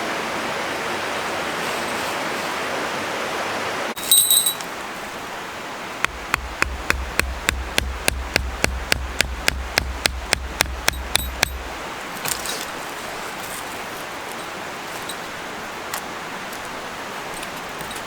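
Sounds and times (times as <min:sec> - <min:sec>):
steady outdoor hiss: 0:00.0 - 0:18.0
tool striking wood: 0:06.0 - 0:12.4.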